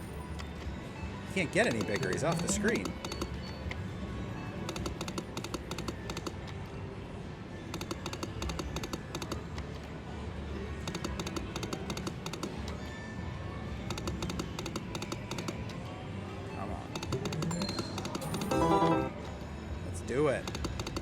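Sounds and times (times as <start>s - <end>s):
slot machine music: 1.3s - 3.2s, 17.4s - 19.4s
slot machine electronic clicking: 1.5s - 3.5s, 4.7s - 6.4s, 7.8s - 9.5s, 10.9s - 12.7s, 13.9s - 15.7s, 17.0s - 19.3s
casino hum: 17.1s - 19.2s.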